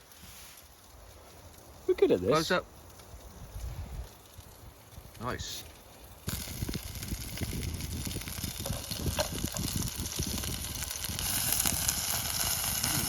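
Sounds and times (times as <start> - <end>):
burgers sizzling in a frying pan: 3.3 - 5.6, 6.2 - 13.0.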